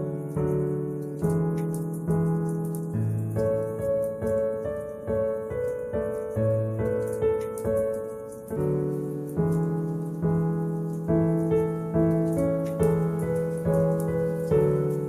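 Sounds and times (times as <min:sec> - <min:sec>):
slow solo piano: 0:00.0 - 0:15.0
wood fire crackling: 0:00.0 - 0:15.0.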